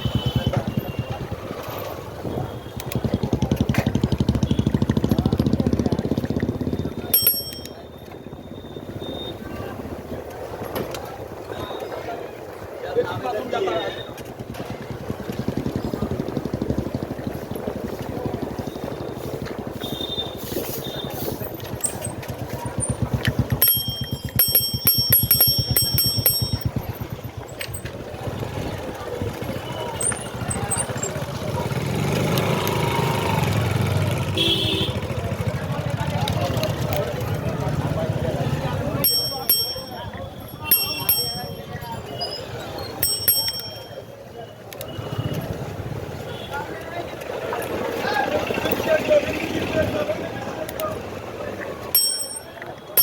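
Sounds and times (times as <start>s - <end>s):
small engine puttering: 0.0s - 8.1s
low rumble of riding: 0.0s - 53.0s
bright ringing tones: 7.1s - 8.7s, 22.8s - 27.9s, 29.7s - 31.2s, 39.0s - 44.2s, 52.0s - 53.0s.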